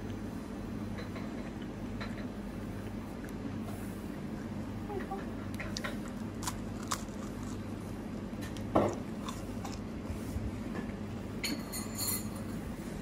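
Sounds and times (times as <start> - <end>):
chewing crisp pastry: 5.2 - 10.5.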